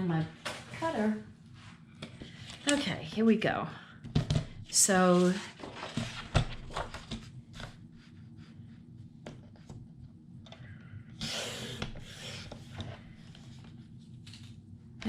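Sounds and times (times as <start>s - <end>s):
paper handling: 5.0s - 7.8s.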